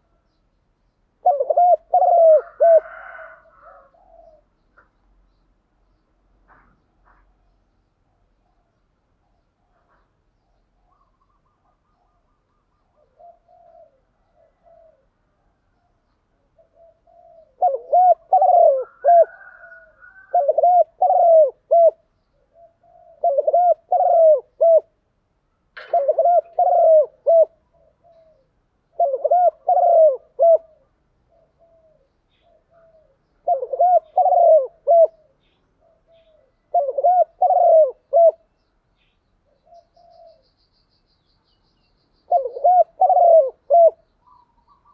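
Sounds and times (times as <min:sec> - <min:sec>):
dove cooing: 0:01.2 - 0:04.6, 0:10.8 - 0:25.0, 0:25.8 - 0:38.5, 0:39.5 - 0:40.6, 0:42.3 - 0:44.9.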